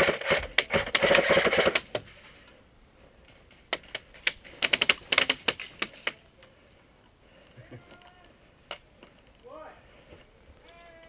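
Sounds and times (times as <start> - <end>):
airsoft rifle fire: 0.0 - 1.9.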